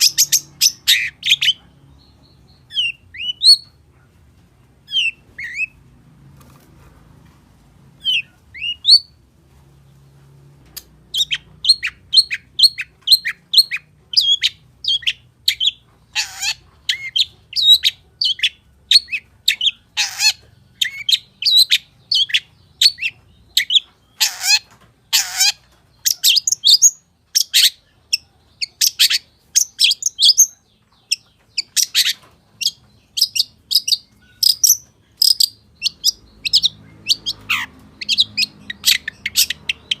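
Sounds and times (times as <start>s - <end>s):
harsh scratchy bird calls: 0.0s - 4.1s, 4.8s - 9.3s, 10.8s - 40.0s
bird chirping: 0.0s - 6.7s, 7.9s - 9.2s, 10.2s - 40.0s.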